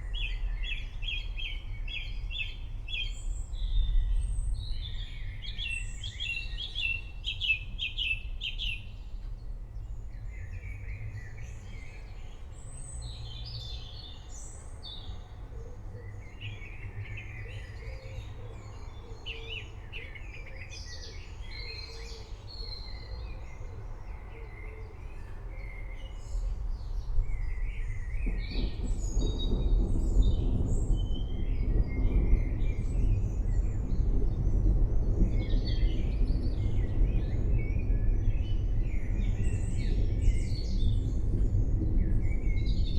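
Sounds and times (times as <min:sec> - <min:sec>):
steady low rumble: 0:27.0 - 0:42.9
thunder rolling: 0:27.0 - 0:42.9.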